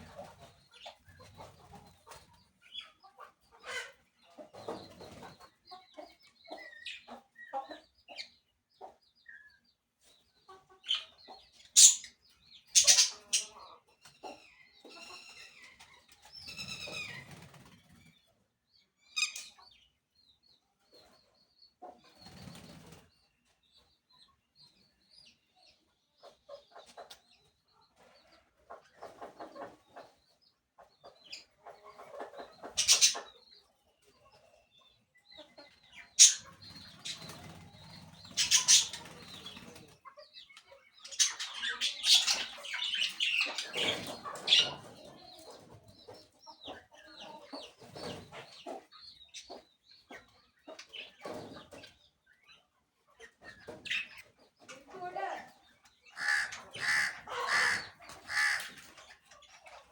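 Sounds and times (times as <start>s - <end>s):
chickens clucking: 0.0s - 59.9s
parakeets chirping: 10.8s - 12.1s, 12.7s - 13.5s, 32.6s - 33.3s, 36.0s - 39.6s, 41.0s - 44.8s
bird squawks: 11.8s - 12.1s, 12.8s - 13.6s, 32.8s - 33.2s, 36.2s - 36.5s, 38.4s - 39.0s, 56.2s - 58.7s.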